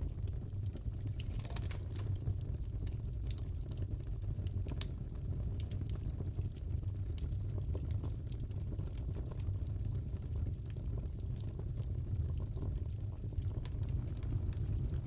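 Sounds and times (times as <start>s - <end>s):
fire crackling: 0.0s - 15.0s
burning wood popping: 0.6s - 3.9s.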